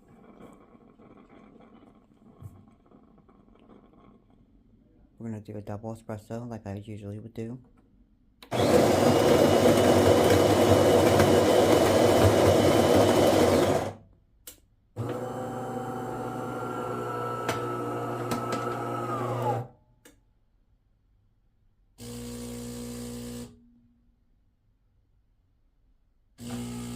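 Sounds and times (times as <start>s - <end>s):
coffee grinder grinding beans: 8.5s - 14.0s, 15.0s - 19.6s, 26.4s - 26.9s
machine motor humming: 15.0s - 19.6s.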